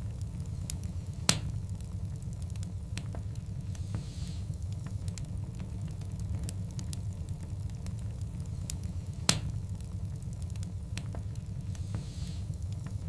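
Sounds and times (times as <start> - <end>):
wood fire crackling: 0.0 - 13.0
loud pop from fire: 1.2 - 1.6, 9.2 - 9.6.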